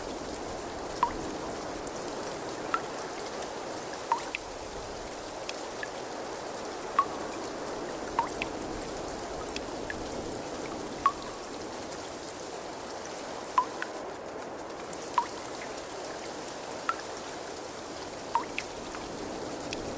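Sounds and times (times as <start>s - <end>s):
trickling water: 0.0s - 19.9s
water drops plinking: 1.0s - 1.2s, 4.1s - 4.5s, 7.0s - 7.5s, 8.1s - 8.6s, 11.0s - 11.5s, 13.6s - 14.0s, 15.2s - 15.4s, 18.4s - 19.0s.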